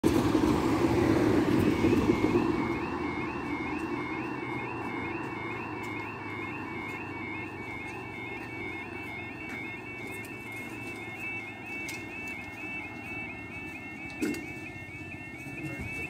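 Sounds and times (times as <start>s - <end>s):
passing vehicle: 0.0s - 6.2s
level crossing warning alarm: 0.0s - 16.0s.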